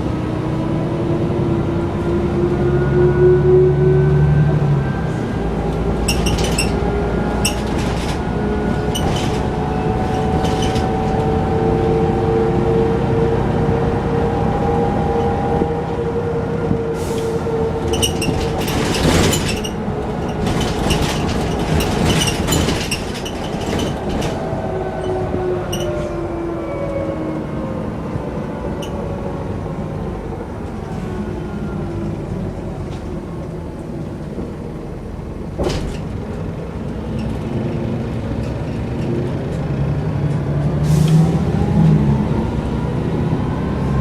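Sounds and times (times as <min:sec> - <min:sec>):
bus engine running: 0:00.0 - 0:44.0
interior rattling and clatter: 0:06.0 - 0:11.3, 0:17.8 - 0:24.6, 0:35.5 - 0:40.4.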